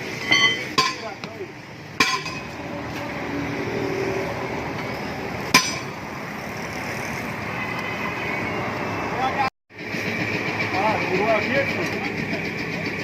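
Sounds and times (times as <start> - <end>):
steady background noise: 0.0 - 13.0
hammer striking metal: 0.2 - 1.4, 2.0 - 2.6, 5.5 - 6.0.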